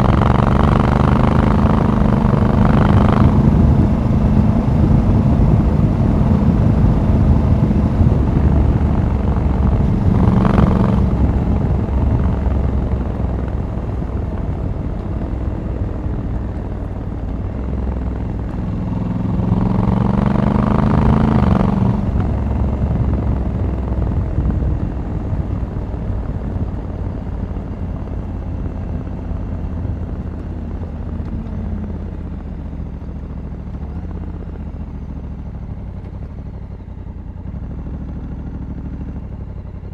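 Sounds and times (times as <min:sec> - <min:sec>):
wind rush: 0:00.0 - 0:28.0
motorcycle engine running: 0:00.0 - 0:39.9.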